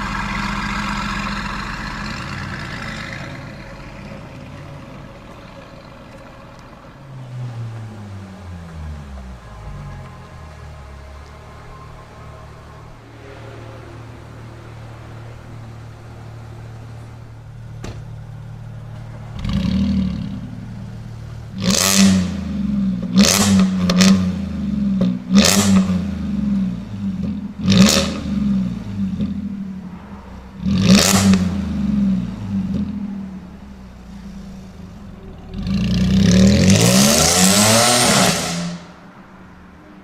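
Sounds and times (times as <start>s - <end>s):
car engine idling and revving: 0.0s - 40.0s.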